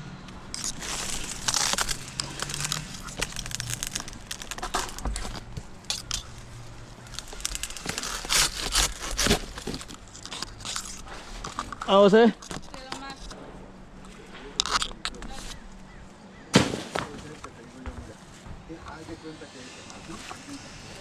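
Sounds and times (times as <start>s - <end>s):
dry palm fronds crackling: 0.3s - 15.9s.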